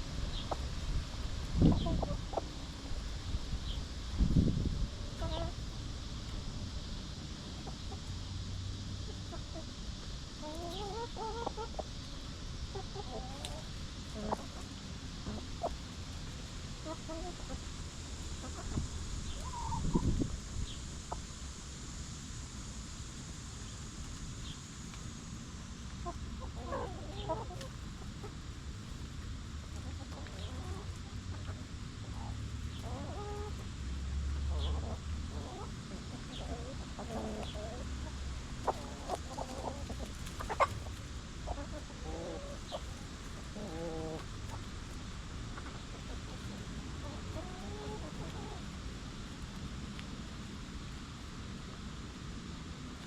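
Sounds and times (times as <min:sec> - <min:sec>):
low outdoor background: 0:00.0 - 0:53.0
hens clucking: 0:00.3 - 0:02.6, 0:10.4 - 0:17.7, 0:18.3 - 0:20.3, 0:26.0 - 0:33.6, 0:34.5 - 0:44.9, 0:45.5 - 0:48.8.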